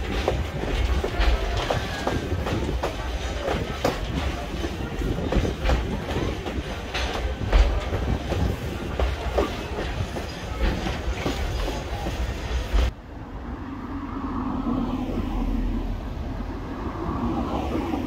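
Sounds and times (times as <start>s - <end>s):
wheels clicking and knocking: 0.0s - 12.9s
railroad cars rumbling: 0.0s - 18.0s.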